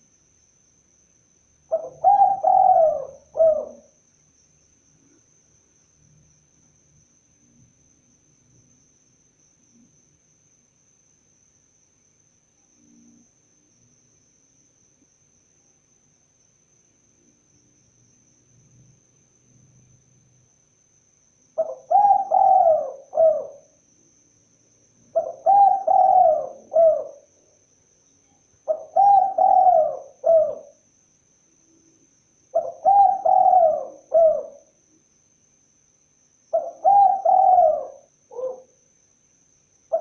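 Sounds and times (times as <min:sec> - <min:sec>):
dove cooing: 0:01.7 - 0:03.9, 0:21.6 - 0:23.7, 0:25.1 - 0:27.3, 0:28.7 - 0:30.8, 0:32.6 - 0:34.7, 0:36.5 - 0:38.7.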